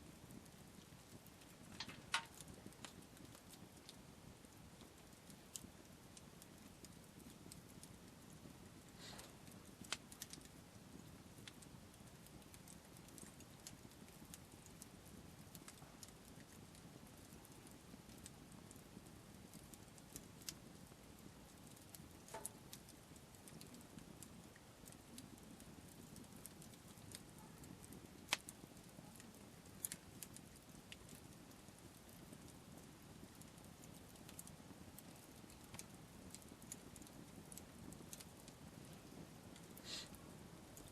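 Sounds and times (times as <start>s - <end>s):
campfire crackling and popping: 0.0s - 40.9s
low steady hush: 0.0s - 40.9s.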